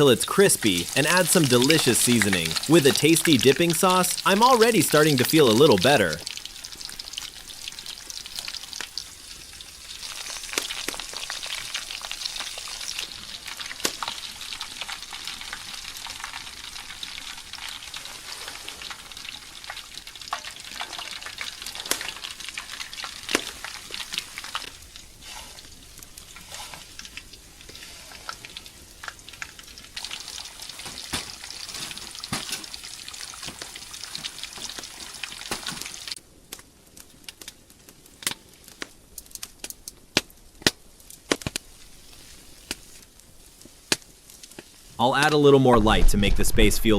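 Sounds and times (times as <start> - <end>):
chicken frying in oil: 0.0 - 36.2.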